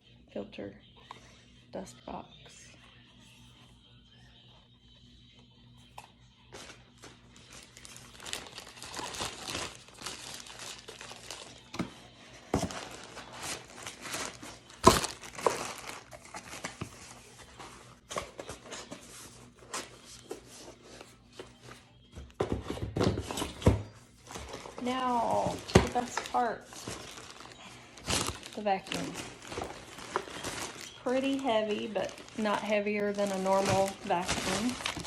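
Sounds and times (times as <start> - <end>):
packaging crinkling and rustling: 6.6 - 21.8, 23.2 - 35.0
packaging tearing: 7.3 - 11.7, 12.6 - 16.9, 24.3 - 35.0.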